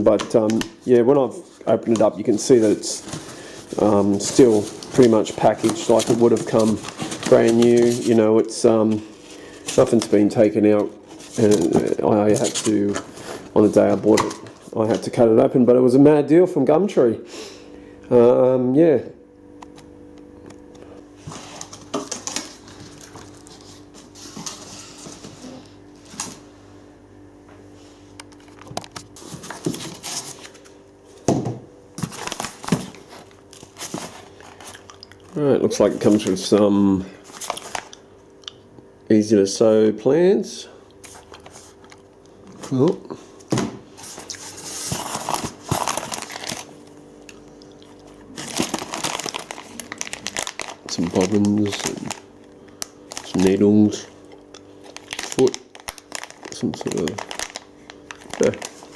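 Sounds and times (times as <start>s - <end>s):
packaging rustling and crinkling: 0.0s - 15.2s, 21.2s - 26.5s, 28.2s - 30.8s, 32.0s - 36.6s, 37.2s - 38.0s, 43.9s - 58.9s
low background hum: 0.0s - 58.9s.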